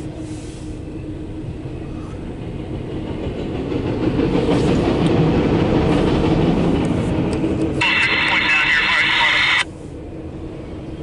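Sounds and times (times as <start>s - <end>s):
freight train rumbling by: 0.0s - 11.0s
clattering train wheels: 1.3s - 8.4s.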